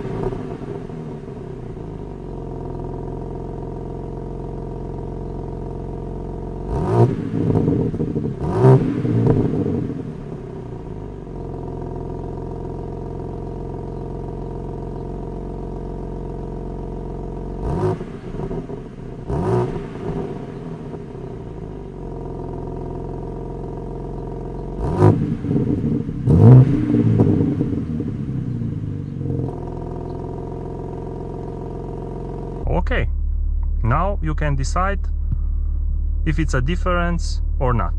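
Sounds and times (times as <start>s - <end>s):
car engine idling and revving: 0.0s - 37.9s.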